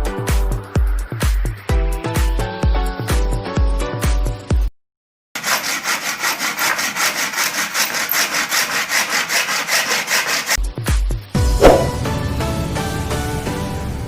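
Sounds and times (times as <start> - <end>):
hand saw cutting wood: 5.4 - 10.6, 11.6 - 12.0
background music: 10.6 - 14.0.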